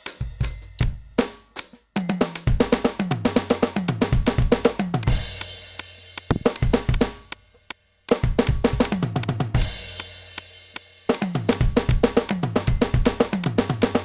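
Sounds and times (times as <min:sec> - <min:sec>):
electronic drum fills: 0:02.2 - 0:05.6, 0:06.2 - 0:07.4, 0:08.1 - 0:10.0
cymbal ringing: 0:03.4 - 0:04.2.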